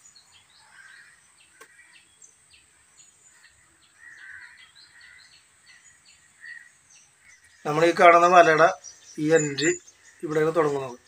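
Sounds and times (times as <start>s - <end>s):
faint birdsong chirps: 0.0s - 11.0s
loud bird call: 3.4s - 5.4s.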